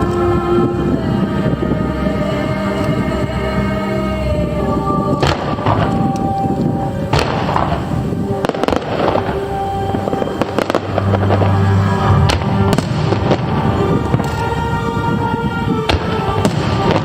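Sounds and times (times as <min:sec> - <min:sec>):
music playing: 0:00.0 - 0:17.0
fireworks bursting bangs: 0:05.2 - 0:17.0.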